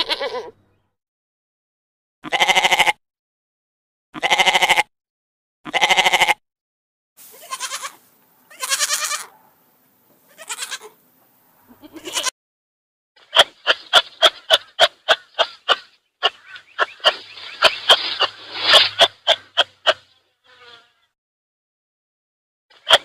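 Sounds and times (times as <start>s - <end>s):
young goats bleating: 0.0s - 0.6s, 2.2s - 3.0s, 4.2s - 4.9s, 5.7s - 6.4s, 7.2s - 9.4s, 10.3s - 11.0s, 11.7s - 12.4s
faint hiss: 7.2s - 8.4s.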